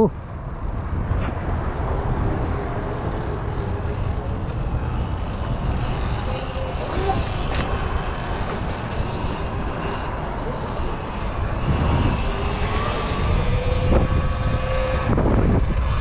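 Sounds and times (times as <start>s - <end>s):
street rumble: 0.0s - 16.0s
wind: 0.0s - 16.0s
faint voices: 3.0s - 13.9s.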